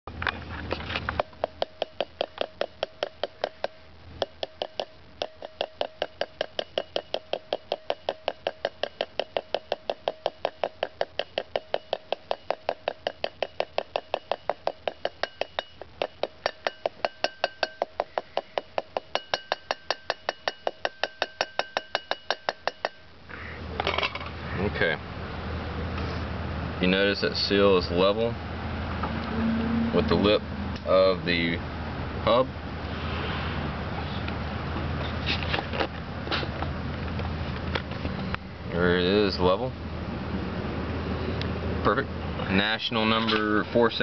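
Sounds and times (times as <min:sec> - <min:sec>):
hammer taps ringing on metal: 0:01.2 - 0:23.0.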